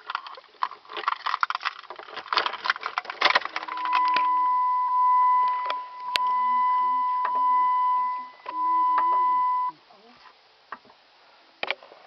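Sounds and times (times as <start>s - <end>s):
handling clicks and rattles: 0.0s - 4.4s
car warning chime: 3.7s - 9.8s.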